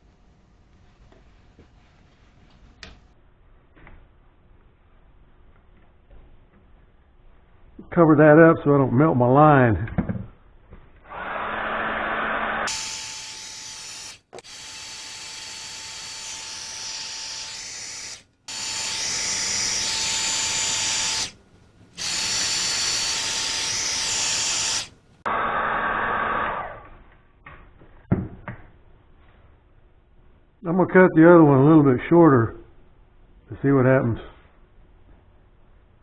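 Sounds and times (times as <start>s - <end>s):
heat gun blowing: 11.1s - 21.4s.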